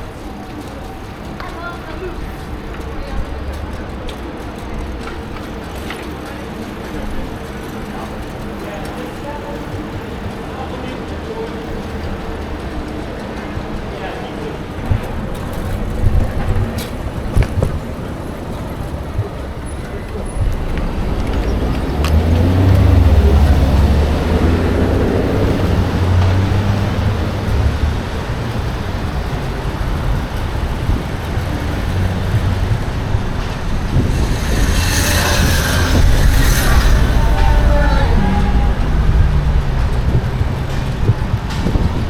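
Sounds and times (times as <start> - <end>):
street traffic: 0.0 - 42.0
wind rumbling on microphone: 11.7 - 42.0
bright hiss: 31.7 - 39.5.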